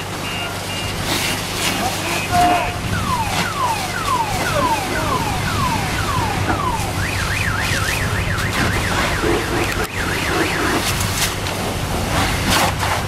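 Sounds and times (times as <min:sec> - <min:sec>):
car alarm chirping and warbling: 0:00.2 - 0:01.0, 0:02.0 - 0:11.1
steady low rumble: 0:00.9 - 0:13.0.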